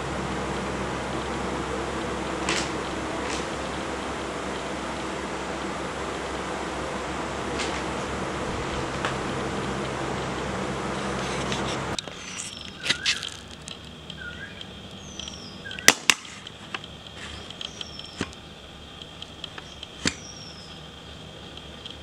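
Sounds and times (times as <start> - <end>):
bird chip notes: 0.0 - 22.0
steady rushing noise: 0.0 - 22.0.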